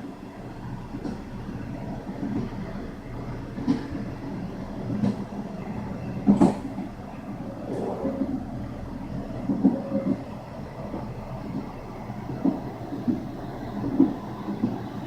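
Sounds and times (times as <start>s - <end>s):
train rumbling on rails: 0.0s - 15.0s
train wheels clacking: 3.6s - 4.1s, 4.8s - 5.4s, 6.0s - 7.0s, 9.4s - 15.0s.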